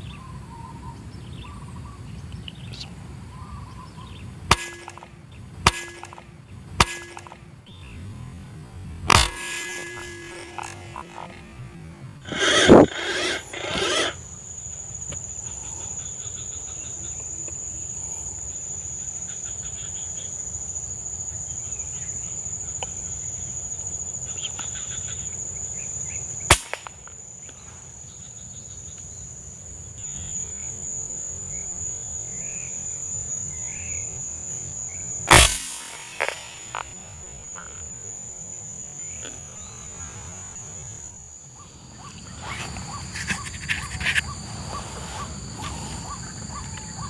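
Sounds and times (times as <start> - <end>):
low outdoor rumble: 0.0 - 17.9
high-pitched insect drone: 3.5 - 47.0
sharp crack: 4.5 - 14.2, 26.5 - 27.1, 35.2 - 38.2
loud burst of noise: 35.3 - 37.5.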